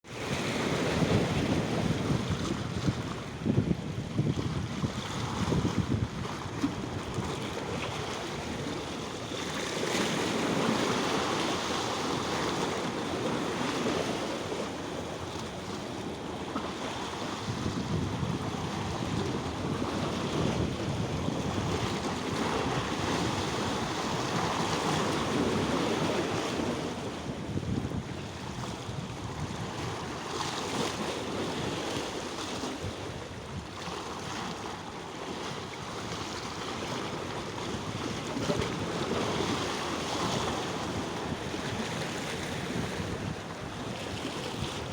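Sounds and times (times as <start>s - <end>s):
wind on microphone: 0.1s - 44.9s
water washing like surf: 34.5s - 44.9s.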